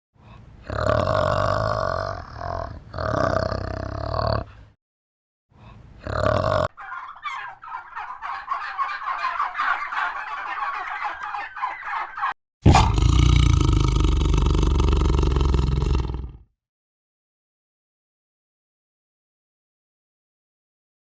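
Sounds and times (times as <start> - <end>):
low drawn-out animal call: 5.7 - 16.5
poultry gobbling: 6.4 - 13.0.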